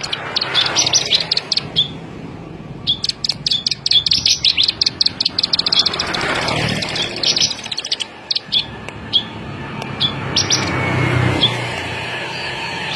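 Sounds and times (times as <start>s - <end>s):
small bird clicking chirps: 0.0s - 2.0s, 2.8s - 10.7s.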